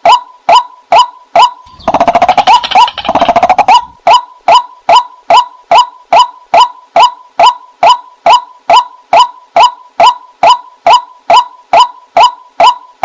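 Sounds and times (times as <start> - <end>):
bird calling short rising notes: 1.6 - 4.3
bird chattering croak: 1.7 - 5.8.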